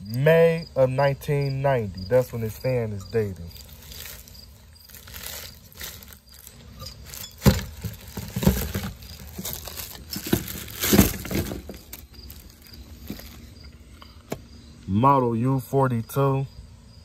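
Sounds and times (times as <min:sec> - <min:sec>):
packaging rustling: 0:03.6 - 0:13.4
knocks and bumps of parts: 0:05.9 - 0:12.4.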